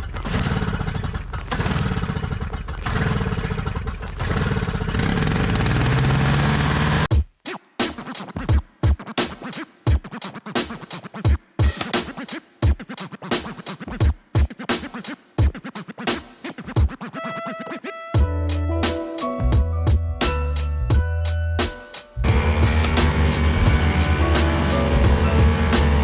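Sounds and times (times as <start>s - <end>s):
engine running: 0.0s - 7.1s, 22.2s - 26.0s
hip-hop music with scratching: 7.1s - 26.0s.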